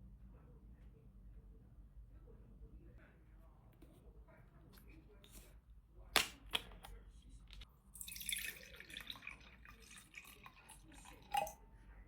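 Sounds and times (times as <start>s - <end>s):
water pouring: 8.0s - 11.6s.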